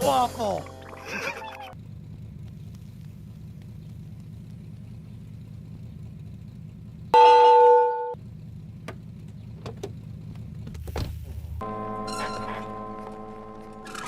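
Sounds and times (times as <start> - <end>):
car engine idling: 1.7 - 13.2
car horn honk: 7.2 - 8.2, 11.6 - 13.8.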